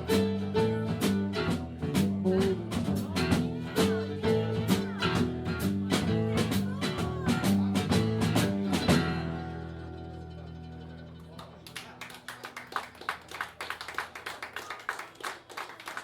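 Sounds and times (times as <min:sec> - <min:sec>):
guitar: 0:00.0 - 0:13.2
drum beat: 0:01.0 - 0:09.1.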